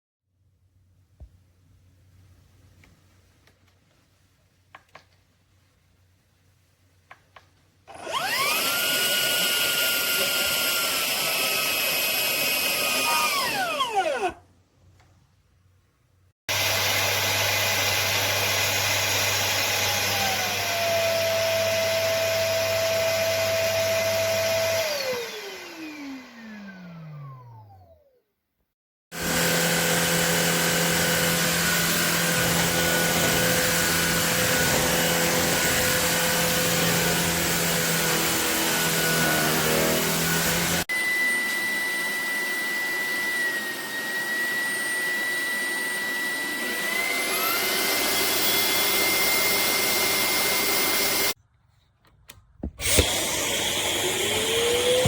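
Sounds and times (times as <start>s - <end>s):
cordless vacuum cleaner running: 7.9s - 14.4s, 16.5s - 28.1s, 29.1s - 51.4s, 52.6s - 55.0s
vacuum motor winding down: 7.9s - 14.4s, 16.5s - 28.2s, 29.2s - 51.4s, 52.8s - 55.0s.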